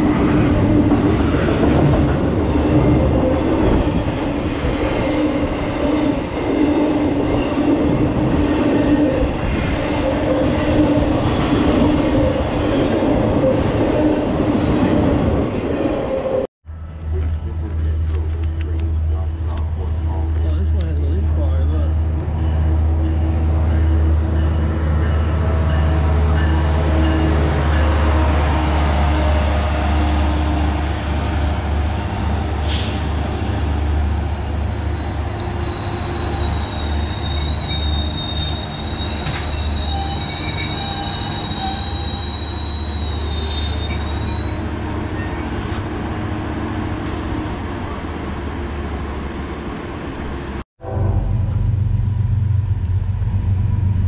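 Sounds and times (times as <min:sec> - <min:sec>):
diesel locomotive engine rumble: 0:16.7 - 0:54.0
train wheels squealing on rails: 0:22.3 - 0:28.5, 0:31.0 - 0:46.0
low rumble: 0:50.8 - 0:54.0.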